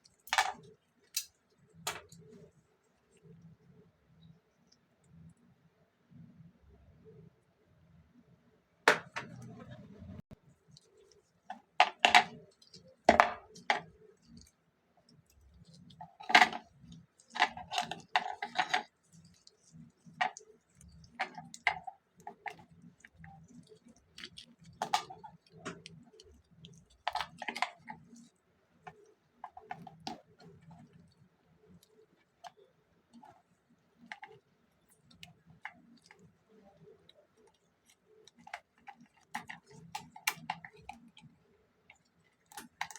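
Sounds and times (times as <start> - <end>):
small tools and plastic parts clicking: 0.0 - 2.6, 10.8 - 14.5, 15.1 - 42.9.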